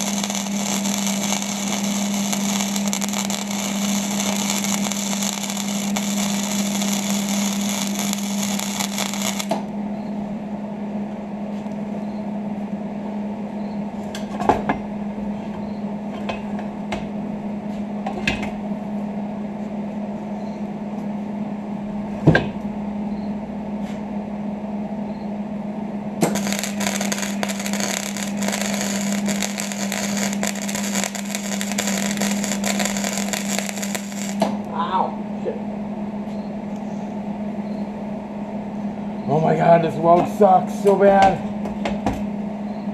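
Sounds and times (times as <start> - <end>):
welding arc crackling: 0.0 - 9.7, 26.2 - 34.6
constant low hum: 0.0 - 42.9.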